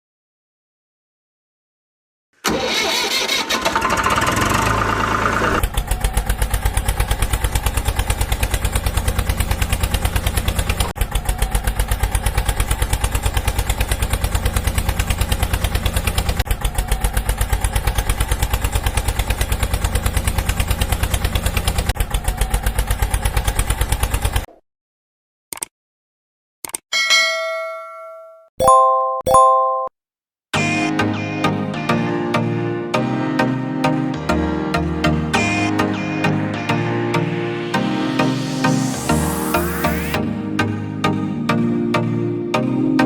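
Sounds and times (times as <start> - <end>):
tractor engine idling: 2.4 - 24.4.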